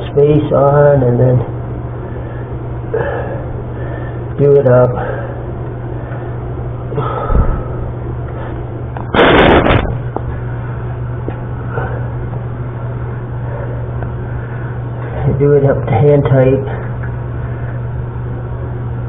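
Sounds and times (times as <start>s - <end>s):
steady low hum: 0.0s - 19.0s
loud rustling: 9.1s - 10.1s.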